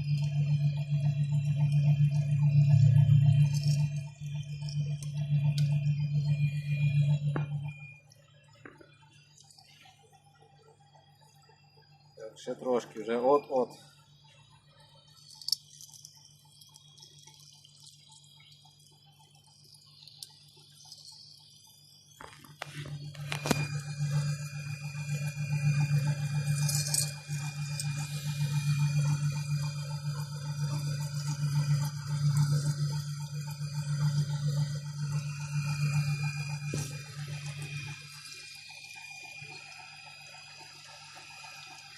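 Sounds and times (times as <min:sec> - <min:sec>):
small clicks: 0:15.2 - 0:24.3.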